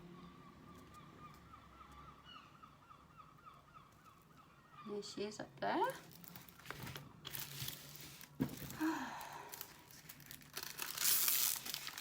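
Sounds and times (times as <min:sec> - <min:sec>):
plastic film crinkling: 0:05.9 - 0:12.0.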